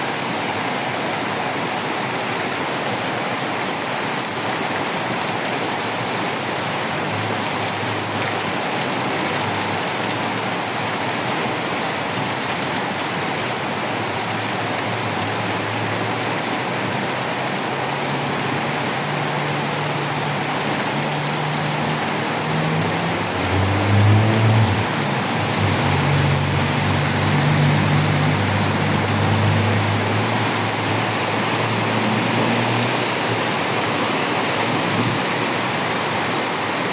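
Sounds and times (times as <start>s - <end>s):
heavy rain pouring: 0.0s - 36.9s
low engine hum: 13.9s - 35.2s.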